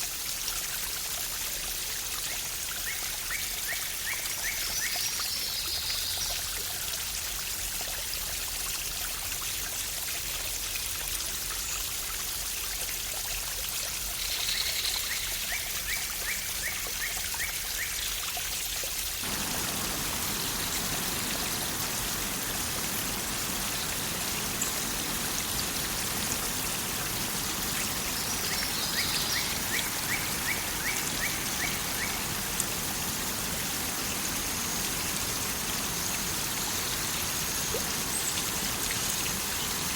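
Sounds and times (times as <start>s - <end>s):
waterfall rushing: 19.2s - 39.9s.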